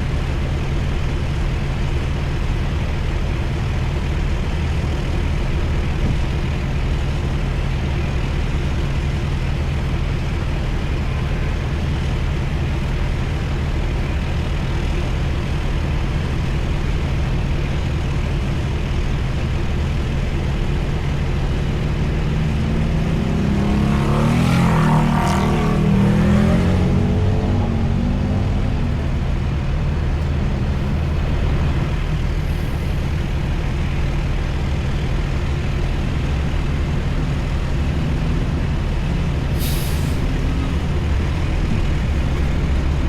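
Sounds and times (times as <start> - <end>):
truck diesel engine droning: 13.6 - 43.0.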